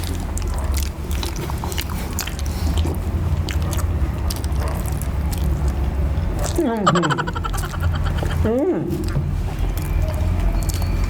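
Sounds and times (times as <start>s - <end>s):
people chewing banana: 0.0s - 11.0s
wet mouth clicks and smacks: 0.0s - 11.0s.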